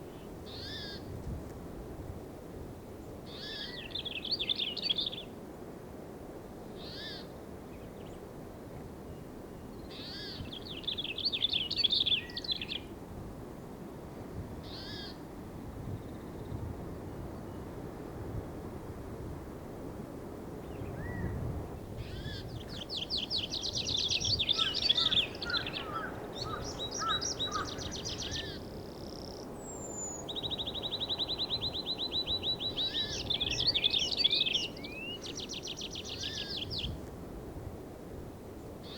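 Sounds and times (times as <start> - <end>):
lower bird chirps: 3.3 - 5.3, 9.2 - 12.9, 20.6 - 37.0
songbirds trilling: 9.6 - 12.9, 14.7 - 15.2, 21.9 - 37.0.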